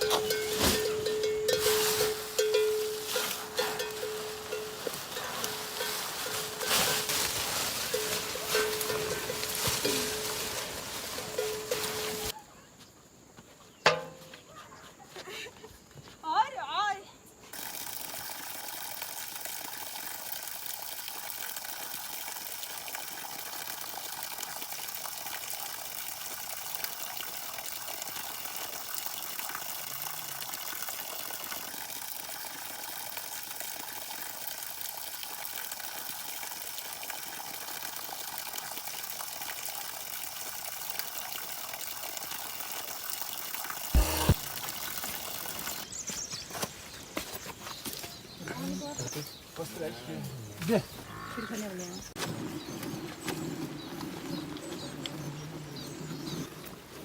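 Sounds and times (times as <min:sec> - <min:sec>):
water hissing: 0:43.6 - 0:45.8.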